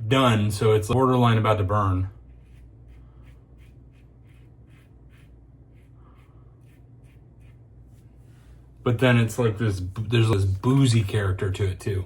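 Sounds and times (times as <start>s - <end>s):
low steady hum: 0.0s - 12.0s
razor scratching across stubble: 2.2s - 8.2s.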